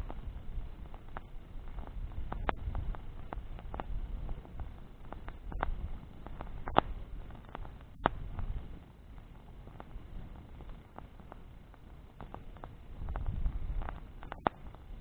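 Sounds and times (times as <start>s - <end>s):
bonfire crackling and popping: 0.0s - 15.0s
low steady rumble: 0.0s - 15.0s
sharp snaps: 0.8s - 8.5s, 12.2s - 14.9s.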